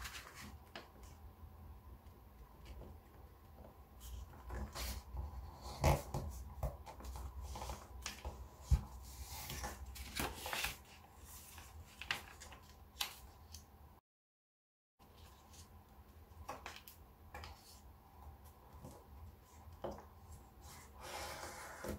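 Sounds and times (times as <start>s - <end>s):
paper rustling and crinkling: 0.0s - 1.2s, 4.0s - 13.6s.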